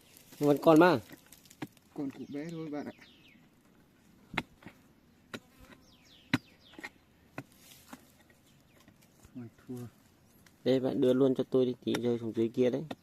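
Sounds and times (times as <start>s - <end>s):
digging tool striking earth: 0.3s - 2.3s, 4.3s - 9.1s, 11.8s - 13.0s
bird chirps: 2.0s - 3.6s, 5.0s - 7.2s.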